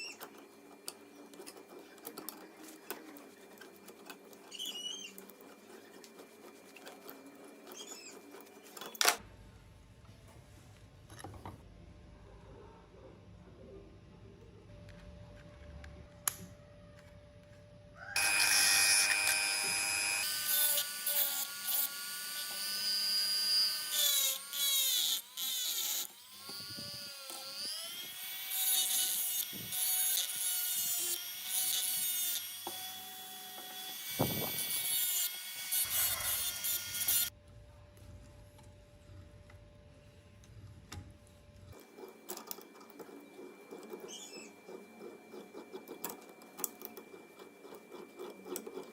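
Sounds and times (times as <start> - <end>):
high-speed electric power tool whine: 18.2 - 37.3.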